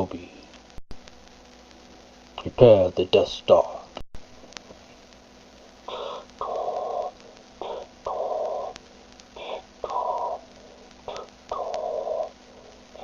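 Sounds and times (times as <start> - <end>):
respirator breathing hiss: 4.8 - 13.0.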